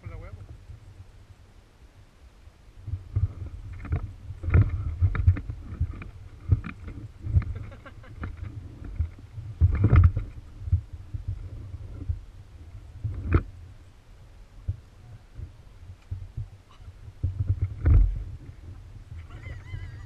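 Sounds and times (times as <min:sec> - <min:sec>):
crackling rustles: 0:02.6 - 0:20.0
microphone handling knocks: 0:02.9 - 0:12.2, 0:13.0 - 0:13.5, 0:17.2 - 0:18.8.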